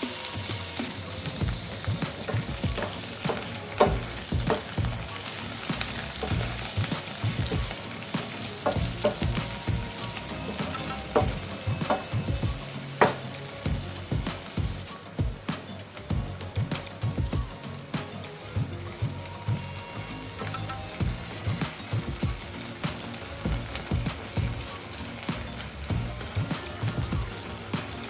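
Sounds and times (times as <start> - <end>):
food sizzling in a pan: 0.0 - 28.0
spatula knocking and scraping pan: 1.4 - 5.1, 5.7 - 14.8.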